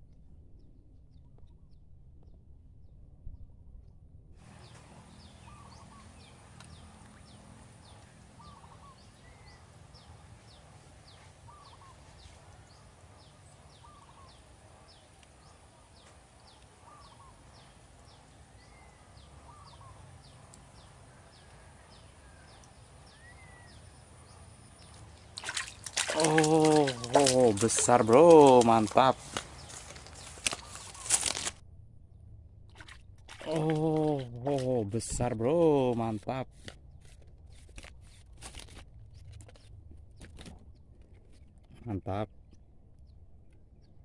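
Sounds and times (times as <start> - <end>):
lower bird call: 4.4 - 10.1, 11.1 - 31.3.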